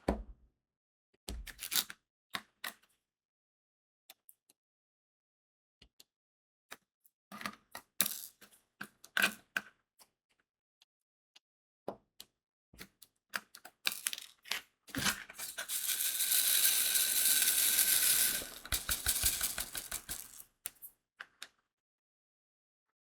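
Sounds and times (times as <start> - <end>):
beads rattling in plastic tray: 15.0 - 20.9
small beads clicking onto canvas: 15.4 - 20.9.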